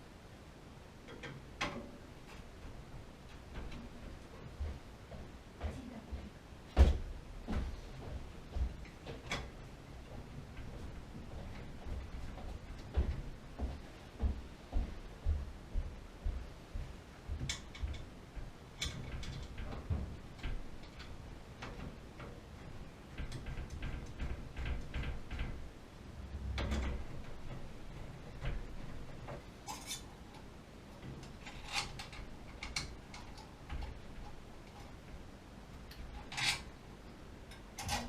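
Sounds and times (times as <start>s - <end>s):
tools and metal parts clicking: 29.7s - 30.4s.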